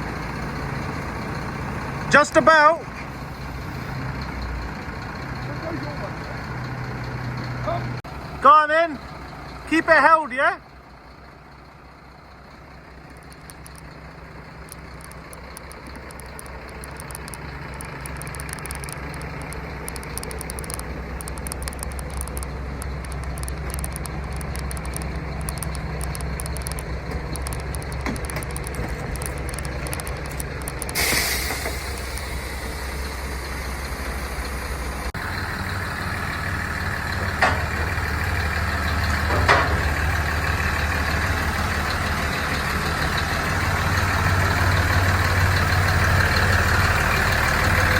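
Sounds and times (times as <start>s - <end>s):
heavy truck engine: 0.0s - 47.9s
air release hiss: 30.9s - 32.8s.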